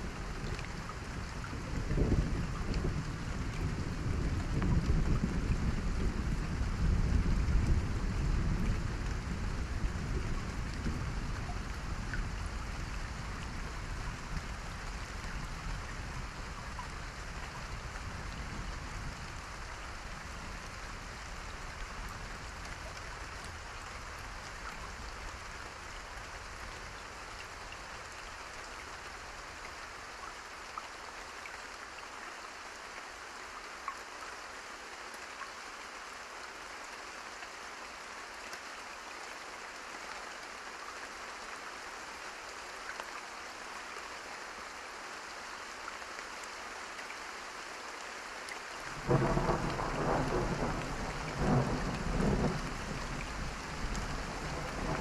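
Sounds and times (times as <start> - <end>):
heavy rain falling: 0.0 - 55.0
thunder rolling: 53.8 - 55.0.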